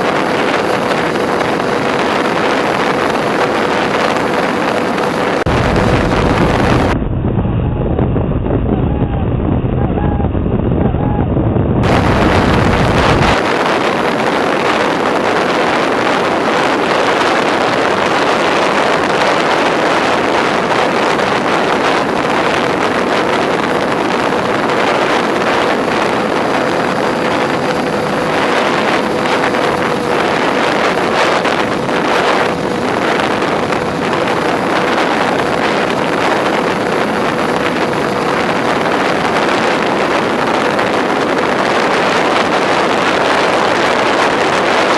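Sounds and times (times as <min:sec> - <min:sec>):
electric motors and propellers droning: 0:00.0 - 0:44.9
wind rushing over microphone: 0:00.0 - 0:44.9.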